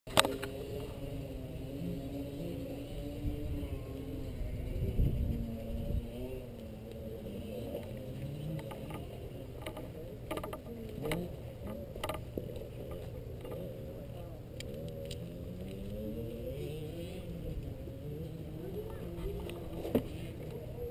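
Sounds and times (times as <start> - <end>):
dirt bike engine revving: 0.1 - 20.9
sharp clicks and knocks: 7.7 - 13.7.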